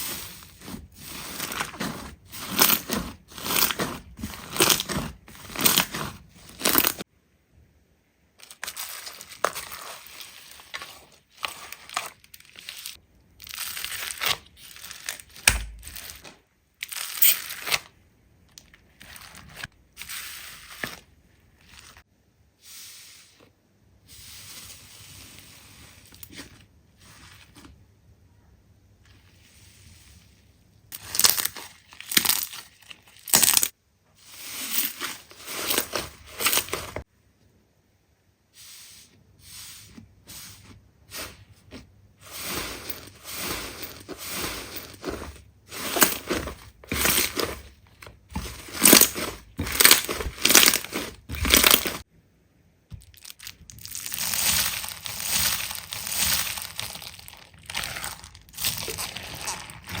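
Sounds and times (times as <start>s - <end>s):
slime squelching by hand: 0.0s - 7.0s, 53.0s - 60.0s.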